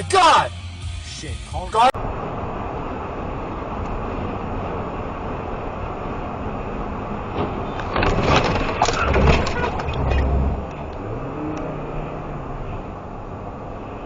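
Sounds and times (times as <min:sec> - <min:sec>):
car road noise: 0:00.0 - 0:14.0
loud bangs and crunching: 0:07.3 - 0:10.7
engine revving: 0:09.9 - 0:12.9.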